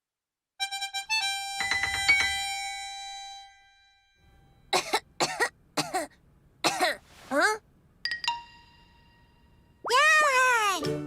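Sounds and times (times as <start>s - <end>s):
child coughing: 4.7s - 7.6s.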